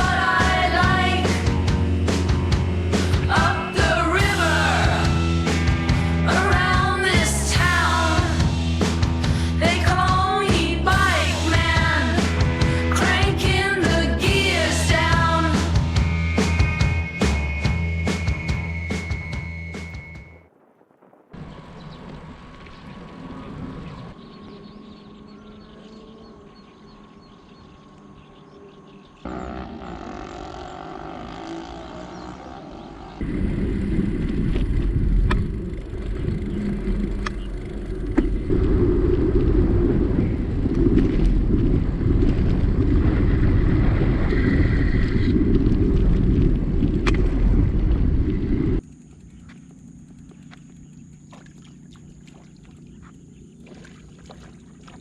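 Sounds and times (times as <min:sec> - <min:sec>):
quiet outdoor background: 0:00.0 - 0:55.0
wind rumbling on microphone: 0:20.6 - 0:49.6.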